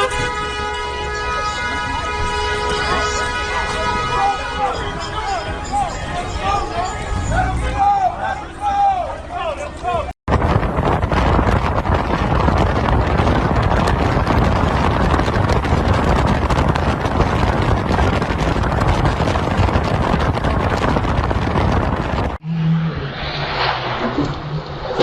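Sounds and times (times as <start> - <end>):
vehicle rumbling with crackling: 0.0 - 25.0.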